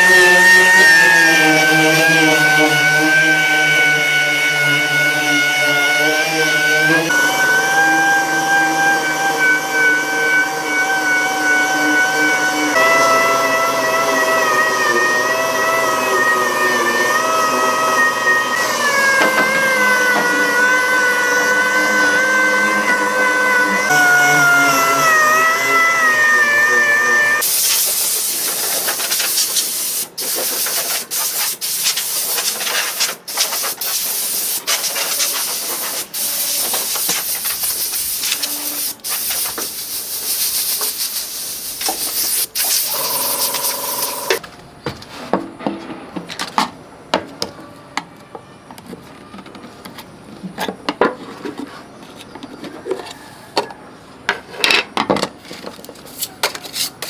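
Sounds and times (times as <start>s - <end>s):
loud spray hiss: 27.4s - 44.4s.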